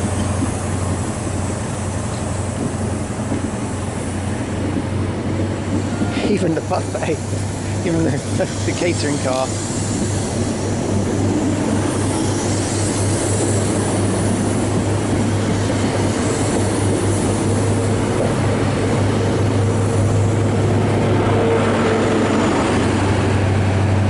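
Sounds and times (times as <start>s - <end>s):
diesel engine drone: 0.0s - 24.0s
train coaches rolling over rails: 0.0s - 24.0s.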